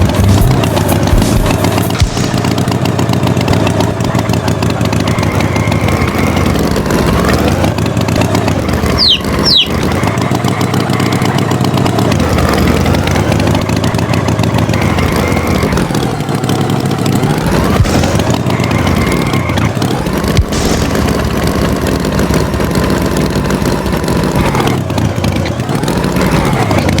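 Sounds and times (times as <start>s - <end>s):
tractor engine revving: 0.0s - 27.0s
short high falling peeps: 8.8s - 10.0s.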